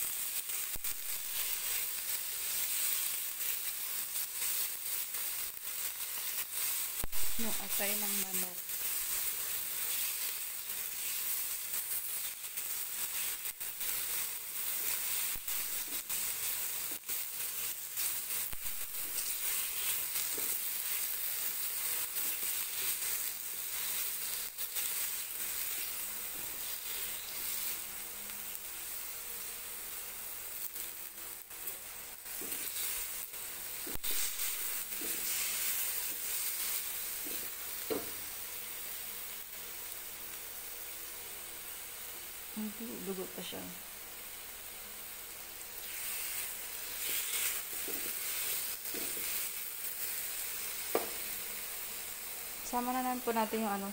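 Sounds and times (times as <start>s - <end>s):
food sizzling in a wok: 0.0s - 53.9s
spatula scraping and tapping pan: 32.3s - 32.9s, 33.8s - 36.4s, 47.0s - 49.5s.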